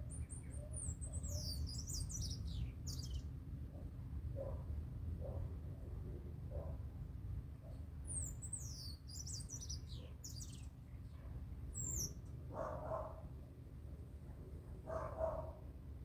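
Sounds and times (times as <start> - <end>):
small birds chirping: 0.1 - 3.2.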